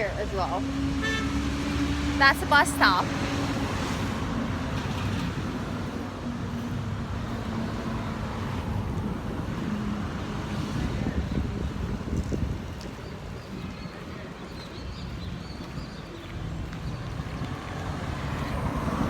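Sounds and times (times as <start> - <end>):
passing vehicles: 0.0 - 19.0.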